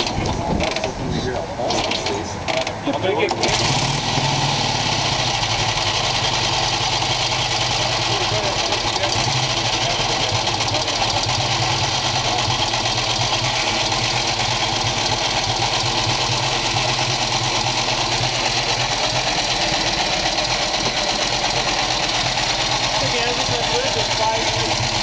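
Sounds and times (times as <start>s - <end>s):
motorcycle kick start: 0.0s - 0.9s, 1.6s - 5.8s
motorcycle engine idling: 1.8s - 25.0s.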